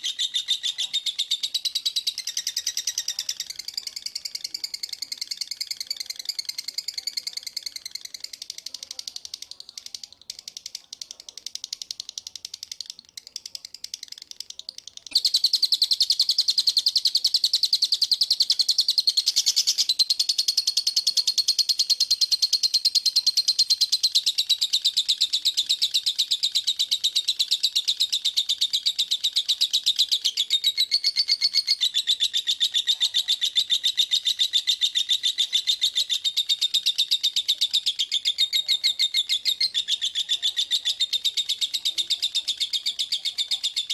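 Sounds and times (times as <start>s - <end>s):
songbird chirping rapidly: 0.0s - 43.9s.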